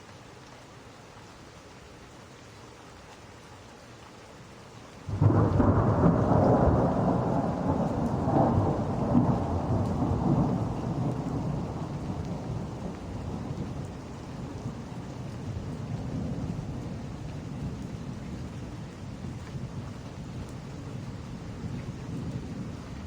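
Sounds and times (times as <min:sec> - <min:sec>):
rain hiss: 0:00.0 - 0:23.0
thunderclap rolling into rumble: 0:05.1 - 0:23.0.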